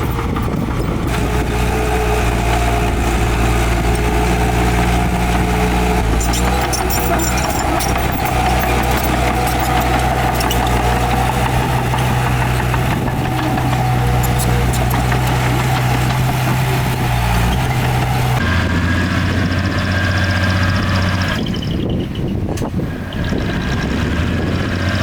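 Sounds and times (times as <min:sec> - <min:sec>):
heavy diesel engine running: 0:00.0 - 0:25.0
light clicks and clanks: 0:06.1 - 0:17.0.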